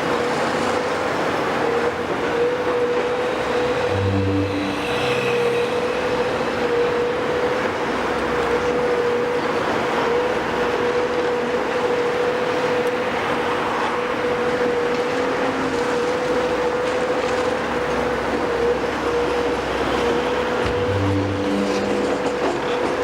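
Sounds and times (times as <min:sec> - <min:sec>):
constant high whine: 0:01.2 - 0:13.4, 0:17.6 - 0:23.0
heavy construction machinery rumble: 0:01.4 - 0:11.4, 0:15.7 - 0:23.0.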